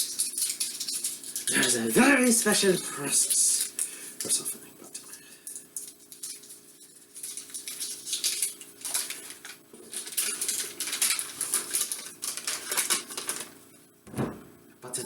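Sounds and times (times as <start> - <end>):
crinkling and rustling handling noise: 3.4 - 13.8.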